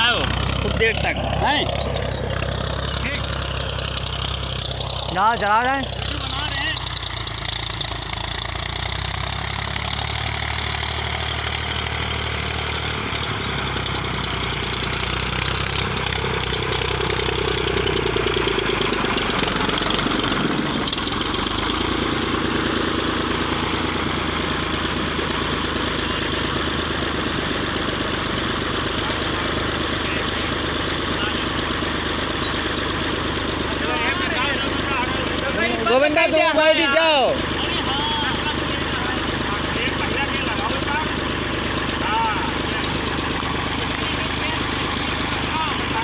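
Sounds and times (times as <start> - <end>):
tractor diesel engine running: 0.0 - 46.0.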